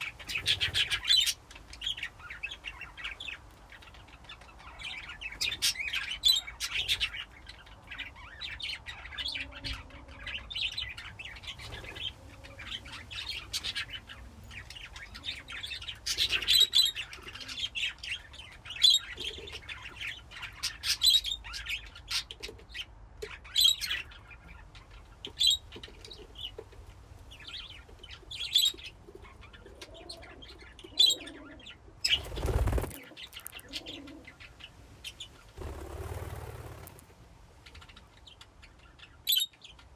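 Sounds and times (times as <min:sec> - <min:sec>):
budgies chirping and chattering: 0:00.0 - 0:39.9
wings flapping: 0:32.0 - 0:33.8, 0:35.6 - 0:37.2.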